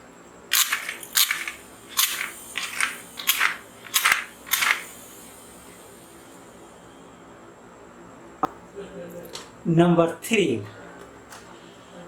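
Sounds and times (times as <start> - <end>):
plastic rustling clicks: 0.5 - 4.9.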